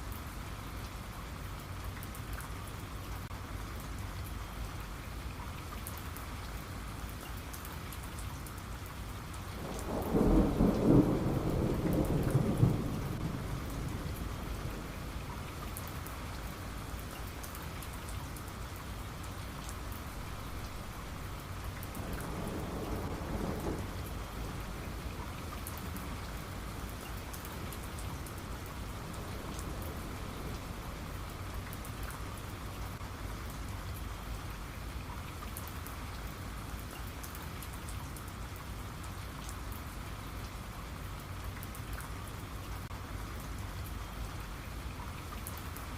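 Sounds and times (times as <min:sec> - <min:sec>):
steady rain: 0:00.0 - 0:45.9
thunder rumbling: 0:09.6 - 0:17.4, 0:19.8 - 0:33.0.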